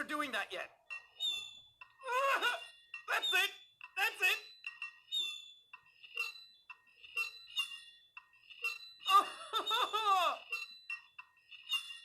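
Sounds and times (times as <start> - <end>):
knife squealing on a plate: 0.9 - 3.6, 4.3 - 5.6, 8.6 - 12.0.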